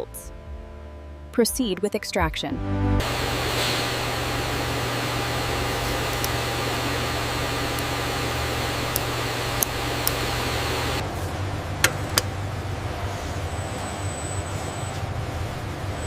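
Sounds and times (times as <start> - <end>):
factory machinery hum and hiss: 3.0 - 16.0
sharp clicks: 5.7 - 11.0.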